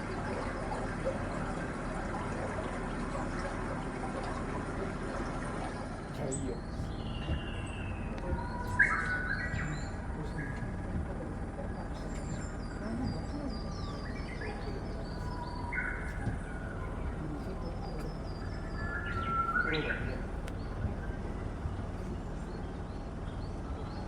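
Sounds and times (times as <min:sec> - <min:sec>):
steady low hum: 0:00.0 - 0:24.0
small birds chirping: 0:05.2 - 0:24.0.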